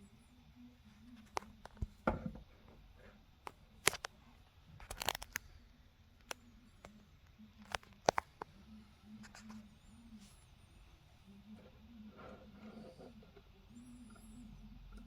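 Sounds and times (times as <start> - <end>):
clicks and knocks of handling: 7.6 - 8.5.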